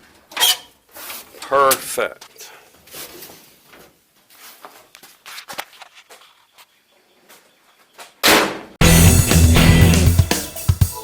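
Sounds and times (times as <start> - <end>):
music with guitar and drums: 8.8 - 11.0.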